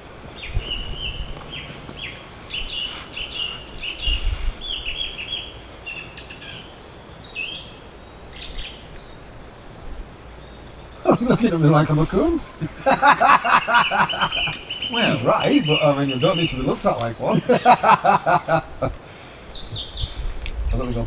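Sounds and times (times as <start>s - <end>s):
songbird chirping: 0.0s - 21.0s
falling bird whistle: 13.6s - 16.6s.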